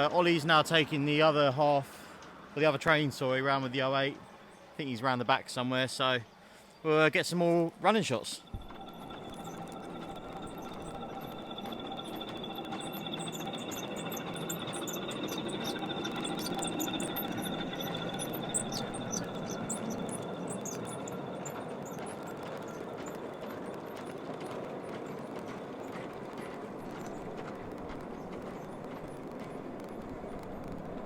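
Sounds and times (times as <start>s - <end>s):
electric locomotive motor whine: 8.4s - 31.0s.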